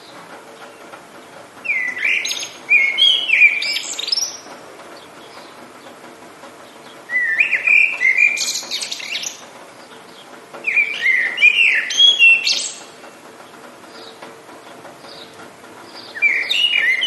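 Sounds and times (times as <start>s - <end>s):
rain hiss: 0.0s - 17.0s
songbird whistling with trills: 1.6s - 4.4s, 7.1s - 9.4s, 10.6s - 12.8s, 16.0s - 17.0s.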